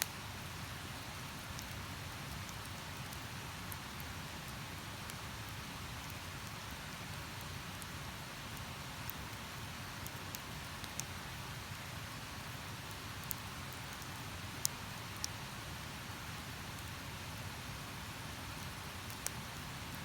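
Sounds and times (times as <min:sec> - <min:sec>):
campfire crackling and popping: 0:01.3 - 0:04.1, 0:07.4 - 0:07.9, 0:08.5 - 0:11.7, 0:12.8 - 0:15.4, 0:18.6 - 0:19.5.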